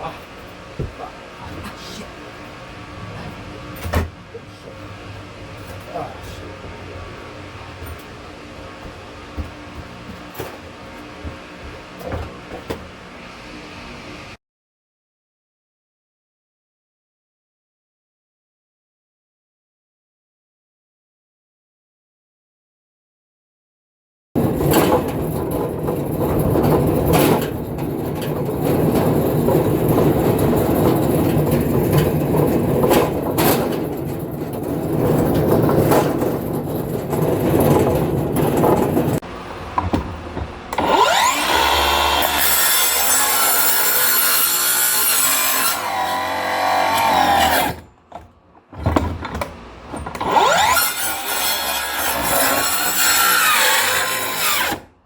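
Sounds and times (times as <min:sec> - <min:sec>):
saw cutting through wood: 0:40.7 - 0:47.8, 0:50.2 - 0:54.9.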